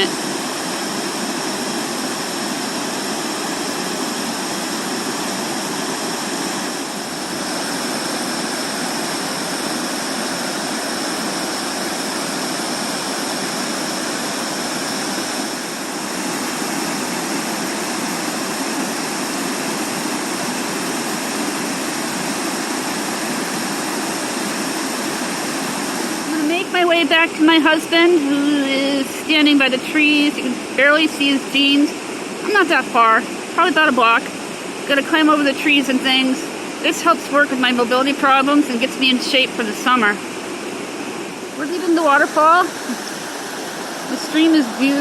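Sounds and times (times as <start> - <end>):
waterfall roaring: 0.0 - 45.0.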